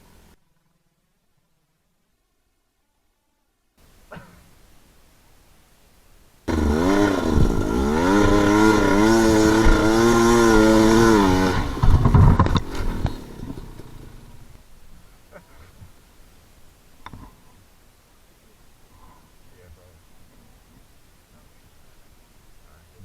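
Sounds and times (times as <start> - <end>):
dirt bike engine revving: 6.5 - 14.6.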